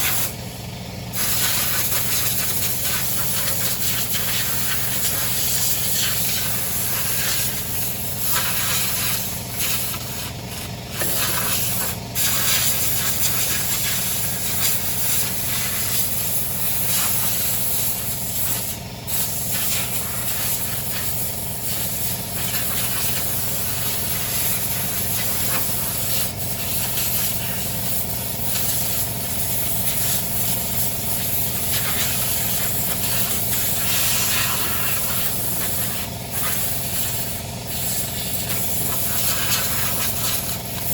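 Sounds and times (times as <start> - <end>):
small motor running: 0.0 - 40.9
loud hiss: 1.1 - 10.3.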